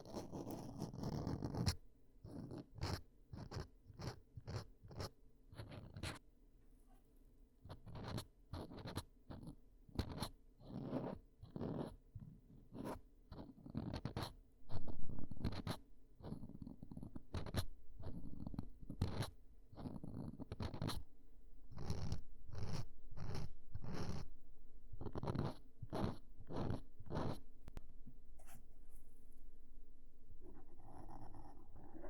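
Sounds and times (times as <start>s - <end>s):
ear cleaning tool scratching: 21.7s - 24.2s, 25.0s - 27.4s.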